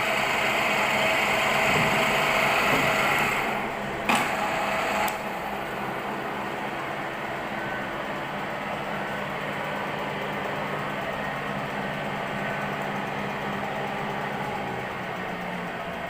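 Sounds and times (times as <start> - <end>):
milling machine humming and whirring: 0.0 - 16.0.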